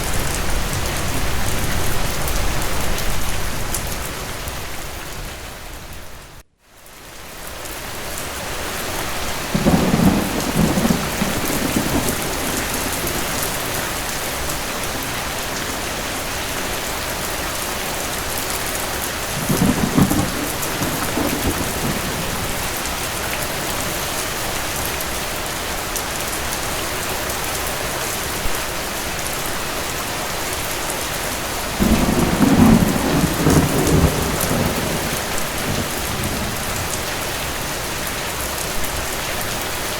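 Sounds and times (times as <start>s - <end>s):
heavy rain: 0.0s - 39.9s
thunder rolling: 9.5s - 16.3s, 19.3s - 24.0s, 31.2s - 37.7s.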